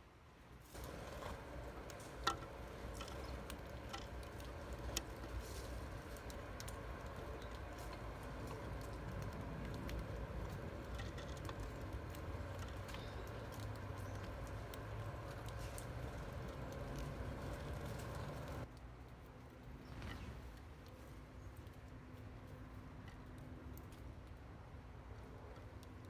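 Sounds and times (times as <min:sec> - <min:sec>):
bird pecking at feeder: 0:00.8 - 0:18.6
low steady rumble: 0:00.8 - 0:26.0.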